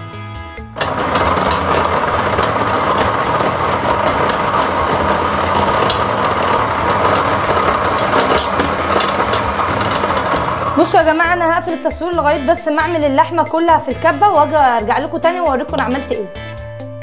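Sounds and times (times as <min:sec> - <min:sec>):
electric food processor running: 0:00.8 - 0:11.4.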